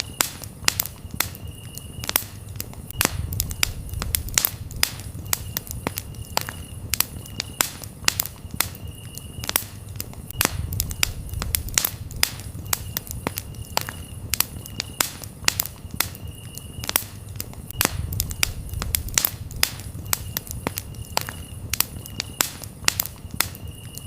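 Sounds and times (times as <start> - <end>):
campfire crackling and popping: 0.0 - 24.0
cricket chirping: 0.0 - 24.0.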